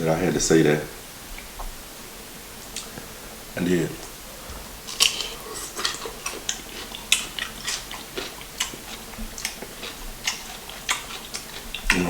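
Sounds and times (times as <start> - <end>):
chewing and lip smacking: 2.6 - 3.1, 4.0 - 12.0.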